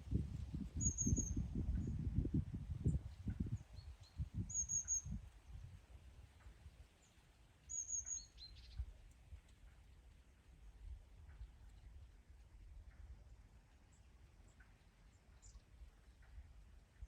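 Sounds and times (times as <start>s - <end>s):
low wind rumble: 0.0s - 6.8s
songbird chirping: 7.0s - 8.8s.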